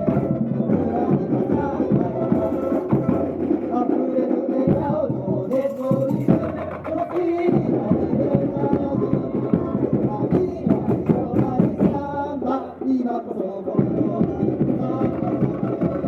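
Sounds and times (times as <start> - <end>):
person singing: 0.0 - 16.0
samba drums and percussion: 0.0 - 16.0.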